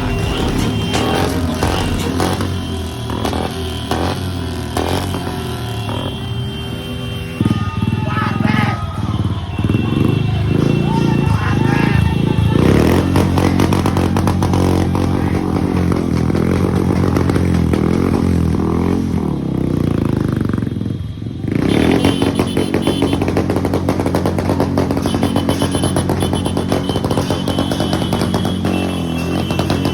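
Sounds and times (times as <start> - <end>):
motorcycle engine running loudly: 0.0 - 29.9.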